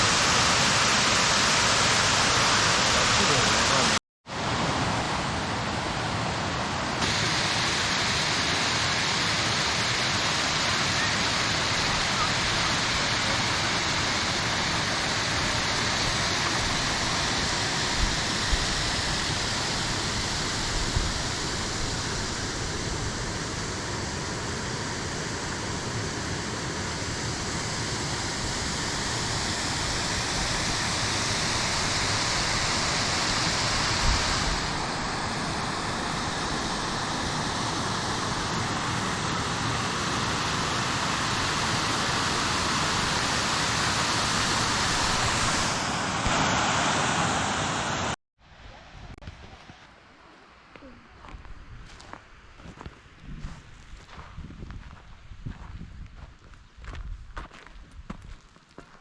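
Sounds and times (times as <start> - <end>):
waterfall rushing: 0.0 - 48.2.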